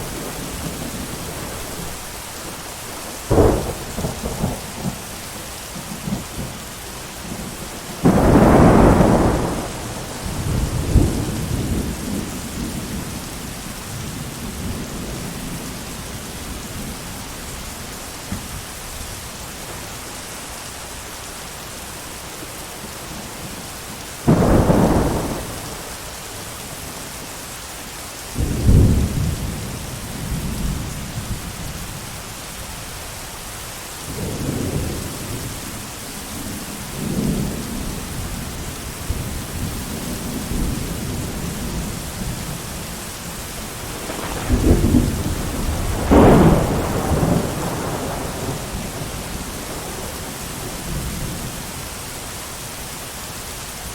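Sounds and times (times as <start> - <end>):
thunder rumbling: 0.0 - 5.1, 7.2 - 19.0, 24.2 - 26.1, 36.3 - 51.6
heavy rain: 0.0 - 53.9.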